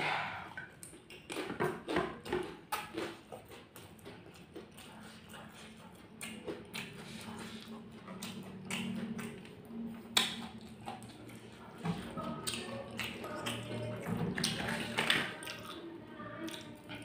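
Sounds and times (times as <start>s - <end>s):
close chewing of rice: 0.0s - 17.0s
wet mouth clicks and lip smacks: 6.2s - 11.4s.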